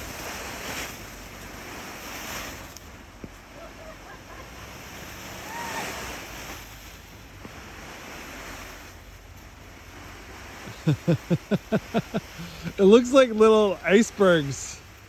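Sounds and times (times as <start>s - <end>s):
snow sliding off plastic roof: 0.0s - 15.0s
person laughing: 10.7s - 13.0s.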